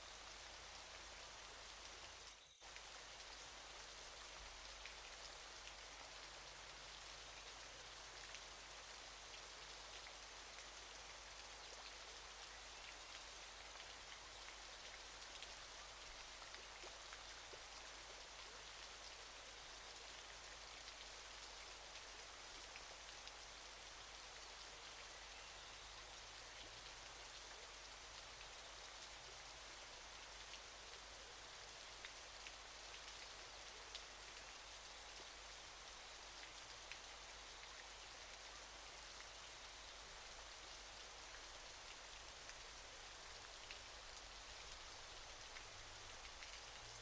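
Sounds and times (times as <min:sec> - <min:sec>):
waterfall hiss: 0:00.0 - 0:19.7.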